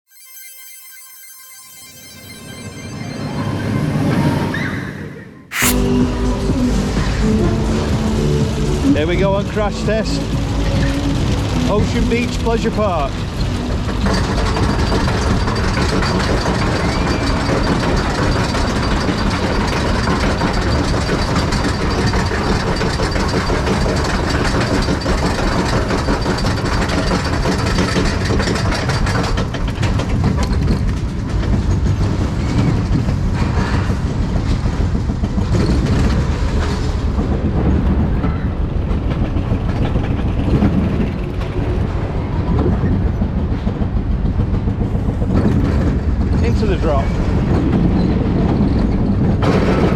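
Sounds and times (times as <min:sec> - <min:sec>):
thin high whine: 0:00.1 - 0:03.8, 0:05.5 - 0:06.4
roller coaster rattling on track: 0:08.4 - 0:49.9.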